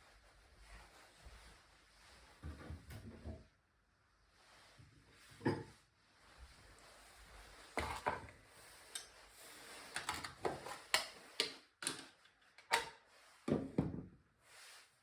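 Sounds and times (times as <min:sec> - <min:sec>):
kitchen items clicking and knocking: 0:07.8 - 0:08.3, 0:09.9 - 0:13.9.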